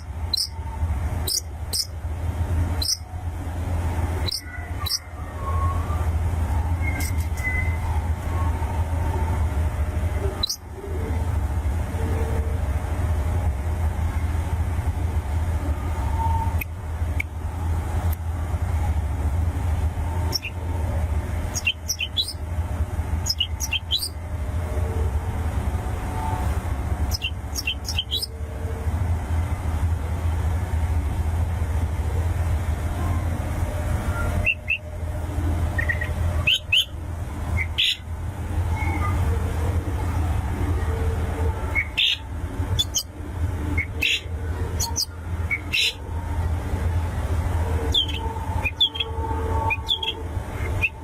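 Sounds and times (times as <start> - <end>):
bird chirping: 0.0 - 1.9, 2.7 - 3.2, 4.2 - 6.1, 6.8 - 7.9, 10.3 - 10.6, 20.2 - 20.6, 21.4 - 22.4, 23.2 - 24.2, 27.1 - 28.4, 35.7 - 36.9, 37.6 - 38.0, 41.7 - 43.1, 43.7 - 46.0, 47.9 - 49.1, 49.7 - 51.0
low hum: 0.0 - 51.0.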